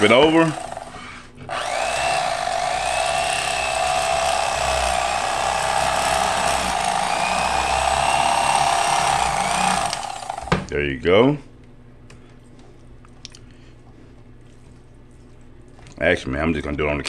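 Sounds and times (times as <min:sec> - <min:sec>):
electric knife motor cutting fish: 0:00.0 - 0:10.7.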